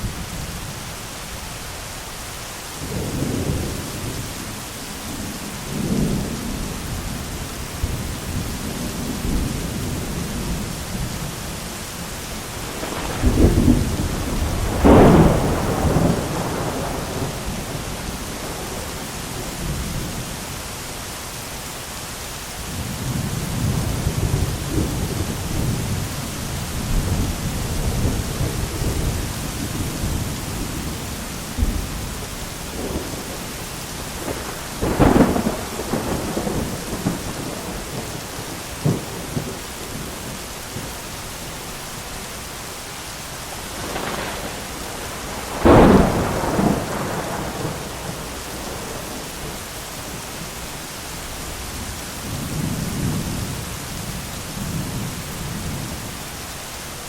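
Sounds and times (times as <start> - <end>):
rain hissing: 0.0 - 57.0
rolling thunder: 12.4 - 20.3, 22.7 - 41.0, 43.5 - 50.6
loud crack of thunder: 12.6 - 20.1, 26.8 - 40.9, 43.7 - 49.6.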